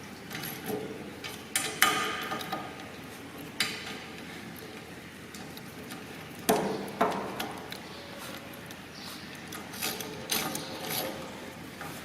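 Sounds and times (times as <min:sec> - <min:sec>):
tools clicking on bolts: 0:09.5 - 0:11.2.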